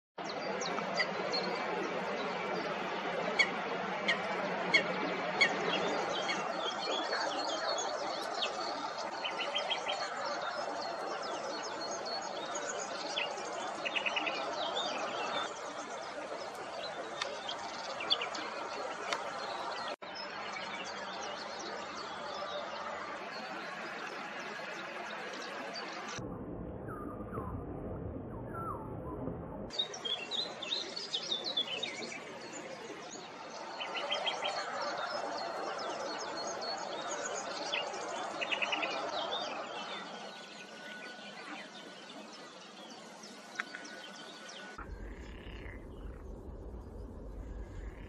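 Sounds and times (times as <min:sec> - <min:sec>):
steady background noise: 0:00.2 - 0:48.0
rapid rattling bird calls: 0:29.7 - 0:48.0
small birds chirping: 0:29.7 - 0:48.0.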